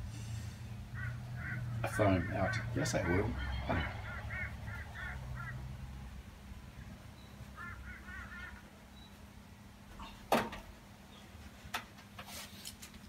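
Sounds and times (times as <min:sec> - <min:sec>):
bird calling: 0:00.9 - 0:06.0, 0:06.8 - 0:09.2.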